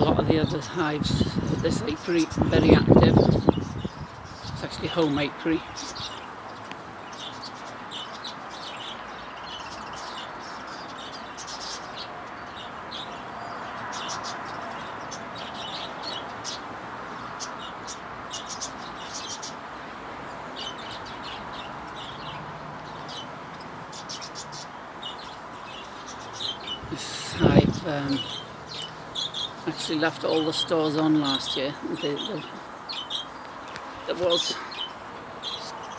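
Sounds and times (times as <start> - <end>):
honeybees humming: 0.0 - 35.9
small birds chirping: 0.0 - 35.9.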